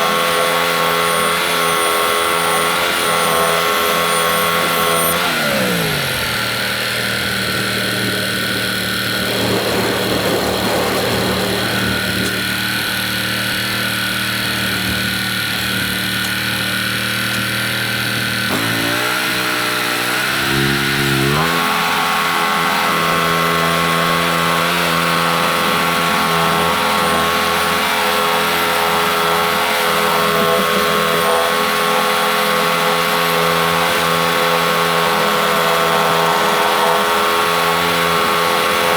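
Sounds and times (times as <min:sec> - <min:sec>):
band saw cutting wood hiss: 0:00.0 - 0:09.6, 0:11.6 - 0:23.1
sawmill gas engine running: 0:00.0 - 0:38.9.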